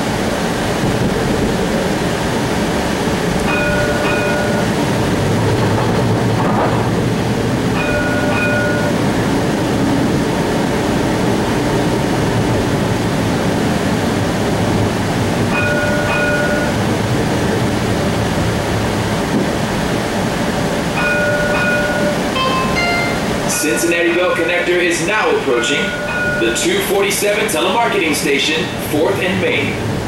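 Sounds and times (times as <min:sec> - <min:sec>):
streetcar rumbling on rails: 0:00.0 - 0:30.0
double-ding chime: 0:03.5 - 0:04.7, 0:07.8 - 0:09.0, 0:15.6 - 0:16.8, 0:21.0 - 0:23.3.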